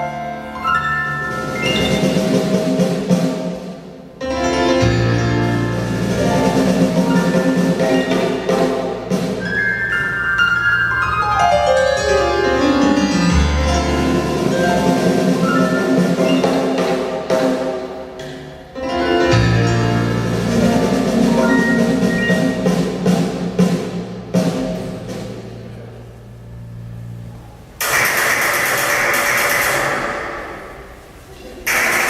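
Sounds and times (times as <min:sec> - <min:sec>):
live band music with piano: 0:00.0 - 0:28.3.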